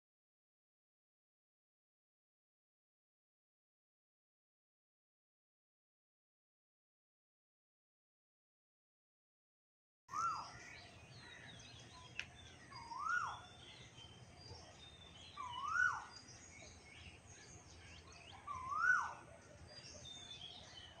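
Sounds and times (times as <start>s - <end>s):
faint bird chirps: 10.1s - 21.0s
bird call rising then falling: 18.4s - 19.2s.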